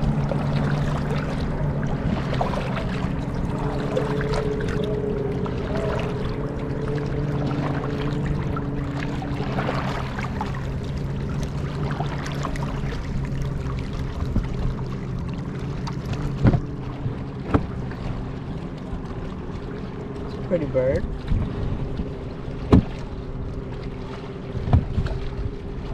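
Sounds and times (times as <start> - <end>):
low motor hum: 0.0 - 25.9
water noise: 0.0 - 25.9
knocks against hull: 15.8 - 17.9, 22.6 - 23.1, 24.5 - 25.5.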